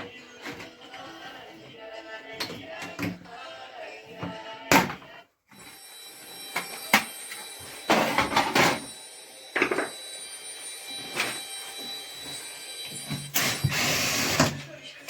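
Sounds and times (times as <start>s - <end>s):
faint steady high tone: 5.5s - 14.7s.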